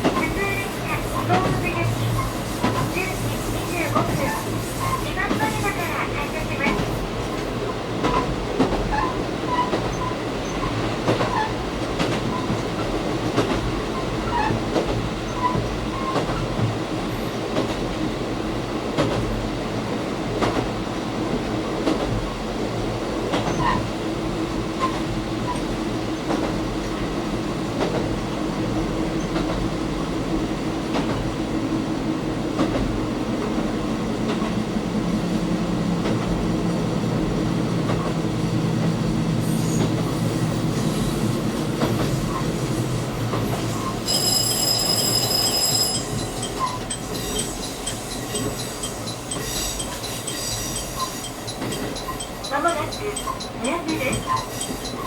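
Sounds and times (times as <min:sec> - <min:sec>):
rail-joint clicks: 0:00.0 - 0:18.1, 0:20.3 - 0:24.0, 0:24.7 - 0:27.0, 0:32.6 - 0:55.0
train engine and wheels rumbling: 0:00.0 - 0:55.0
high chime: 0:44.1 - 0:48.5.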